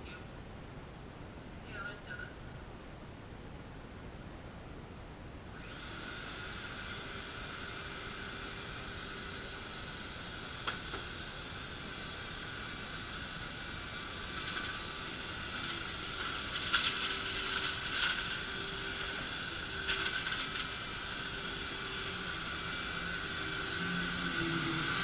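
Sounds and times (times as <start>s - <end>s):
vacuum cleaner whine: 5.5s - 25.0s.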